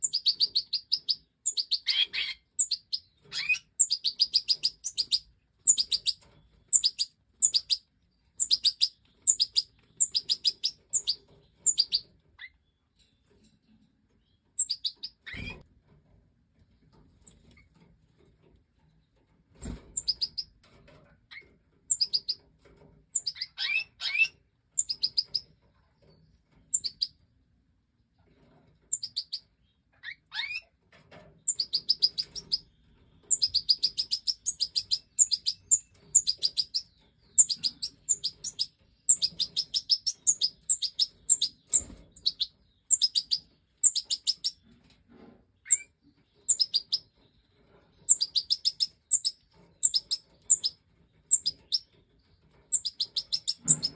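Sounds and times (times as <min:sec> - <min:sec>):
goldfinches chirping: 0:00.0 - 0:12.1, 0:14.6 - 0:15.6, 0:20.0 - 0:20.5, 0:21.9 - 0:22.4, 0:23.2 - 0:25.5, 0:26.7 - 0:27.1, 0:28.9 - 0:29.4, 0:31.5 - 0:44.6, 0:45.7 - 0:47.1, 0:48.0 - 0:51.9, 0:52.7 - 0:53.9.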